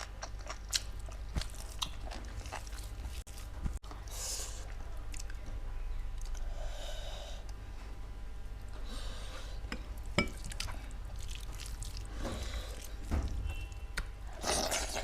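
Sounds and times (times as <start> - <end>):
steady low hum: 0.0 - 15.0
wet chewing and sucking: 10.4 - 13.1.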